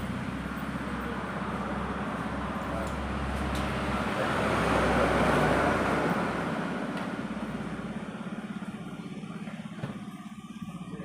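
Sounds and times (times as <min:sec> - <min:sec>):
motorcycle engine running: 0:05.8 - 0:11.0.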